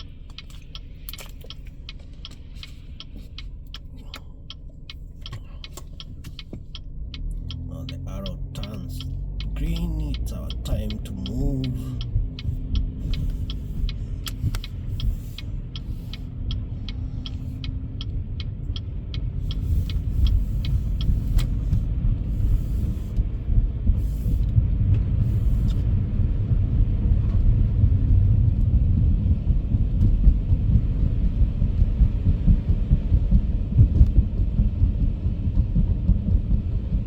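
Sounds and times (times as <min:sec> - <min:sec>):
car engine and tyres rumbling: 0:00.0 - 0:37.0
turn signal clicking: 0:00.0 - 0:37.0.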